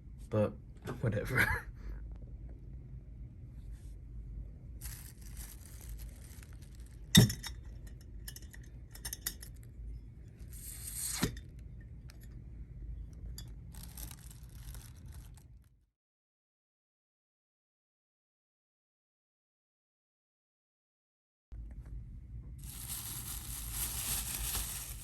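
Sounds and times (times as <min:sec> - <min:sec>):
low room hum: 0:00.0 - 0:15.8, 0:21.5 - 0:25.0
packaging rustling: 0:04.8 - 0:07.1, 0:13.7 - 0:15.5, 0:22.6 - 0:25.0.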